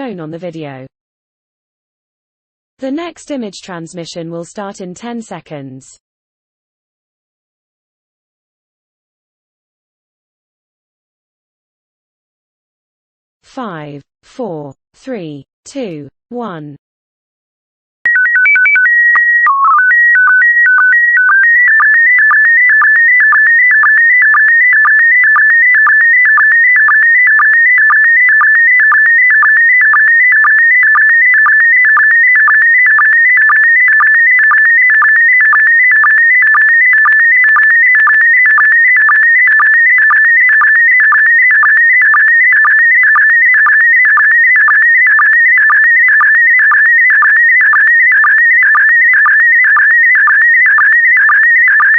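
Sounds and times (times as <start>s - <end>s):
header of steady tones: 18.1s - 47.2s.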